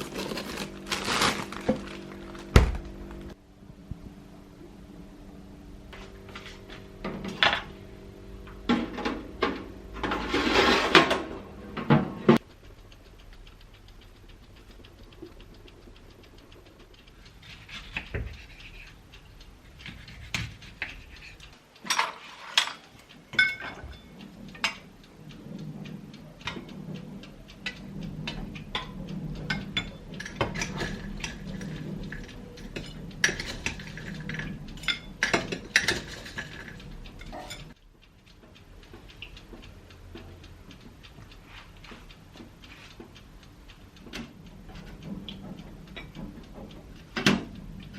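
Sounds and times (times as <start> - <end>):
low steady hum: 0.0 - 47.9
dishes and utensils clinking: 21.8 - 24.8, 32.6 - 37.8.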